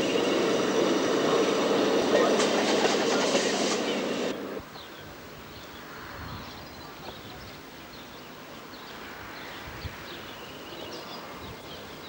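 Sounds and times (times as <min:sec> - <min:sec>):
birds chirping: 0:00.0 - 0:05.8
outdoor background noise: 0:00.0 - 0:12.0.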